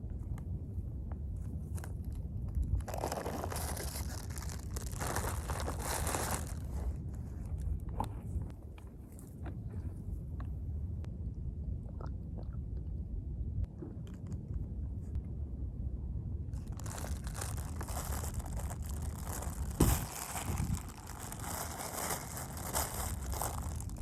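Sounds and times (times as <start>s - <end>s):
rustling and crinkling: 0.0s - 10.6s, 16.6s - 24.0s
low rumble: 0.0s - 24.0s
handling noise: 16.6s - 24.0s.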